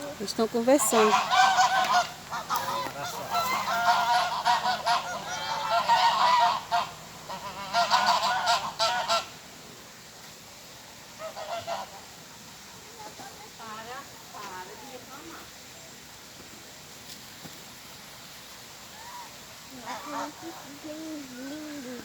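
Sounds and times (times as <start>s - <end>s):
swans honking: 0.0s - 9.4s, 11.1s - 12.2s, 19.0s - 22.0s.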